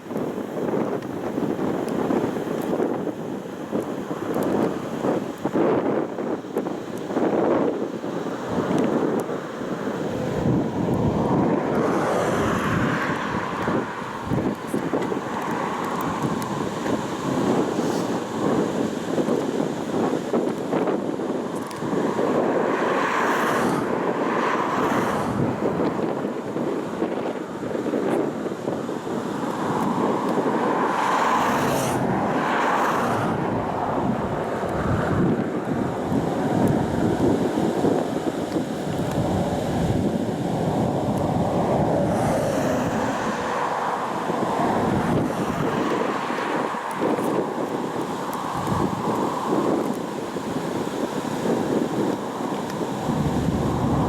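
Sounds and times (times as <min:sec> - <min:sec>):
wind buffeting microphone: 0:00.0 - 0:54.0
freight train rumbling past: 0:53.0 - 0:54.0.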